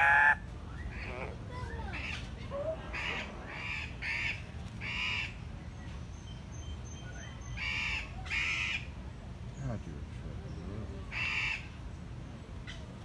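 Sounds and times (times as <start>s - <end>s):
bird squawking calls: 0.0s - 5.4s.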